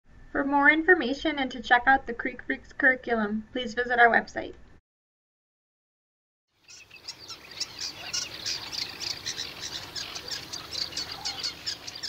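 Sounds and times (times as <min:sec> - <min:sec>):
birds chirping: 0:06.6 - 0:12.0.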